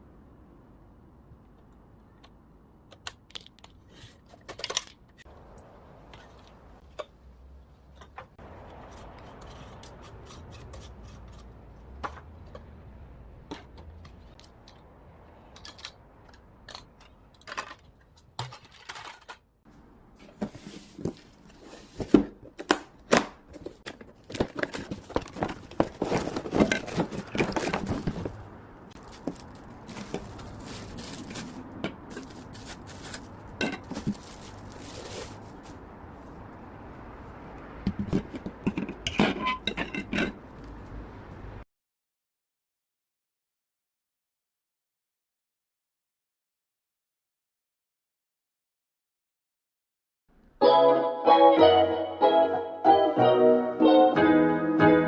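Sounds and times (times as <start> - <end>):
rustling: 20.2 - 22.4, 23.5 - 36.5.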